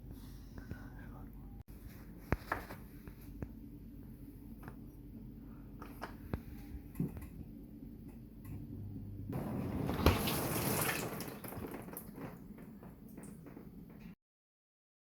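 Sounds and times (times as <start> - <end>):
dishwasher humming: 8.1 - 14.2.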